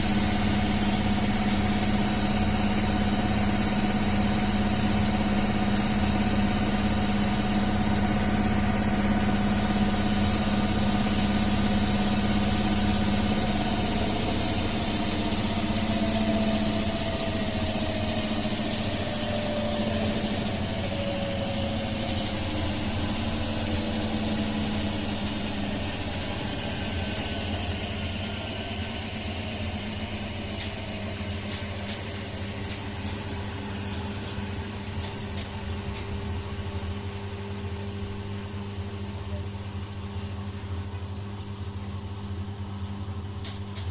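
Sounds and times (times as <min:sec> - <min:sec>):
washing machine running: 0:00.0 - 0:43.9.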